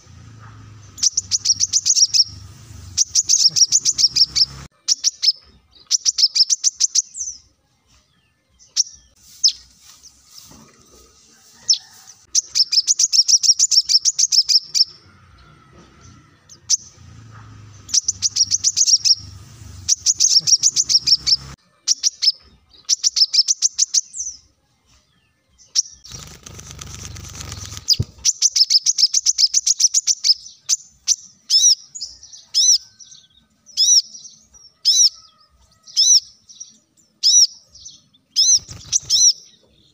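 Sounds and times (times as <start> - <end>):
bird singing chattering trills: 0.0 - 7.4, 11.7 - 15.0, 17.6 - 24.4, 35.9 - 39.9.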